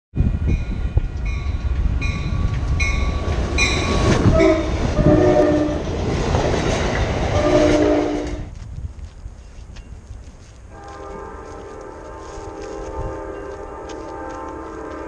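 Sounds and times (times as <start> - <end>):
train wheels rumbling on rails: 0.1 - 15.0
train horn blasts: 3.6 - 5.8, 7.3 - 8.5, 10.7 - 15.0.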